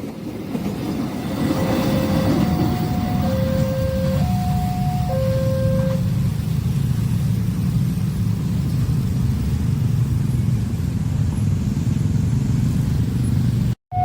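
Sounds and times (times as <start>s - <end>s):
train rumbling past: 0.0s - 14.0s
two-tone crossing alarm: 1.6s - 6.1s.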